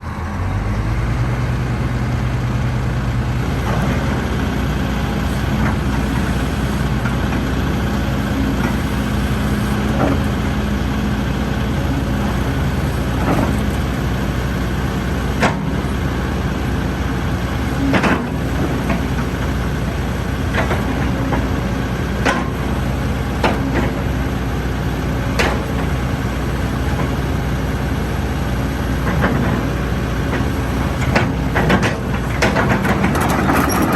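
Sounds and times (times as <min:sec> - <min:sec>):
excavator diesel engine running: 0:00.0 - 0:33.9
metallic clanks and knocks: 0:31.0 - 0:33.9.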